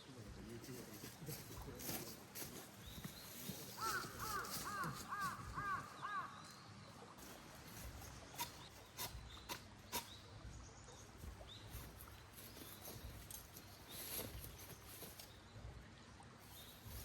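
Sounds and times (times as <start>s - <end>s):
bird calling: 3.0s - 6.6s.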